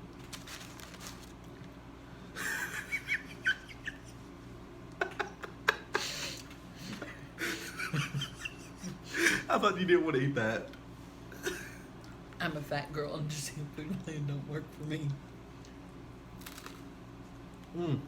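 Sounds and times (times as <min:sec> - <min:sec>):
food rustling: 0:00.0 - 0:01.8, 0:16.4 - 0:16.9
faint room hum: 0:00.0 - 0:18.0.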